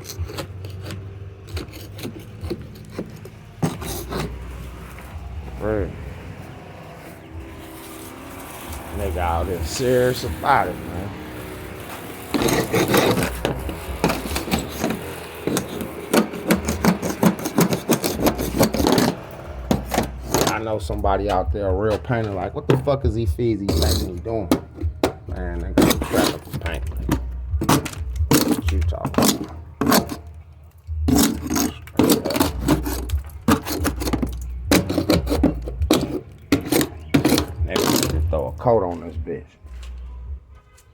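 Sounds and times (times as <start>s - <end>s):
hand scraper scraping paint: 0.0s - 40.9s.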